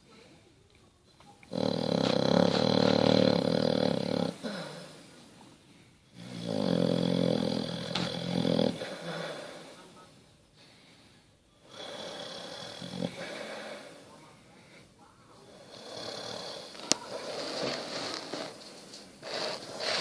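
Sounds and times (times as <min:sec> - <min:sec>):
dog snoring: 0:01.5 - 0:04.7, 0:06.1 - 0:09.8, 0:11.7 - 0:14.0, 0:15.5 - 0:20.0.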